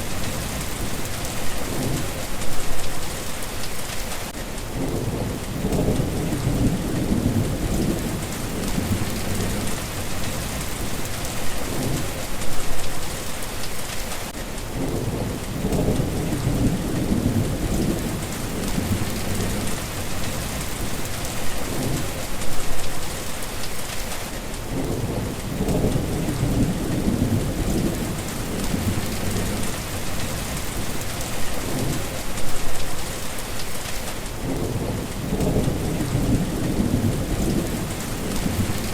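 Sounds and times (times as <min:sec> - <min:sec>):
rain hissing on surfaces: 0:00.0 - 0:38.9
rolls of thunder: 0:04.8 - 0:09.8, 0:14.8 - 0:21.1, 0:24.7 - 0:31.0, 0:34.4 - 0:38.9.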